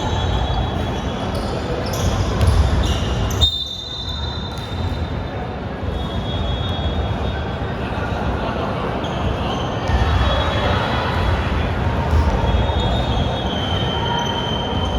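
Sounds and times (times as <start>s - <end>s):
sneaker squeaks: 0.0s - 7.5s, 9.0s - 11.3s, 12.0s - 14.9s
basketball bouncing on court: 1.3s - 3.4s, 12.0s - 13.0s.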